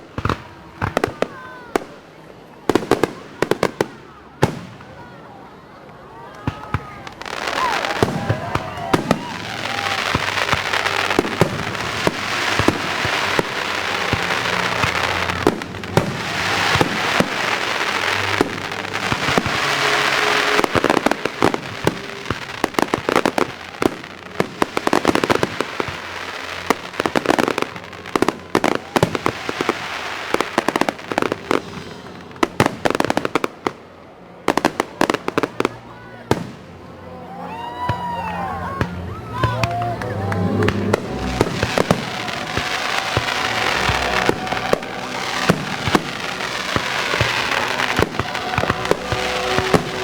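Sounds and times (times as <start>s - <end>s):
fireworks bangs: 0.0s - 5.2s, 6.4s - 36.8s, 38.8s - 50.0s
fireworks crackling hiss: 6.7s - 36.7s, 40.6s - 50.0s.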